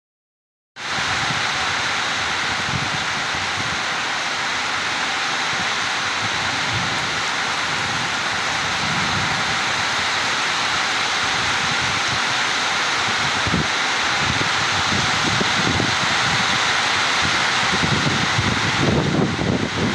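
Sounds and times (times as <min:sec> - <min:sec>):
heavy rain pouring: 0:00.8 - 0:19.9.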